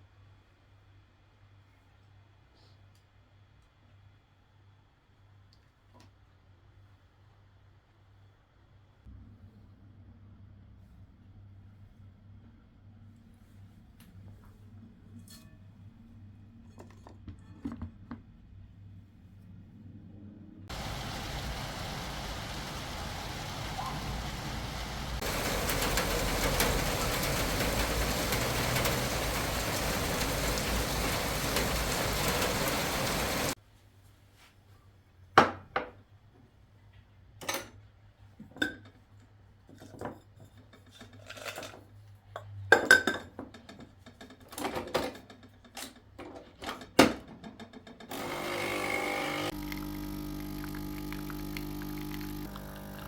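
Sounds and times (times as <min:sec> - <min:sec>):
steady rushing noise: 0:20.7 - 0:33.6.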